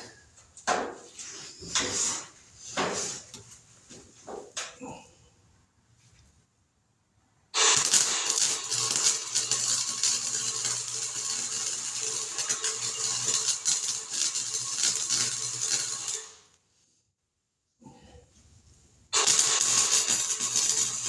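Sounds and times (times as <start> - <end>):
welding arc crackling: 7.6 - 16.5, 19.2 - 21.0.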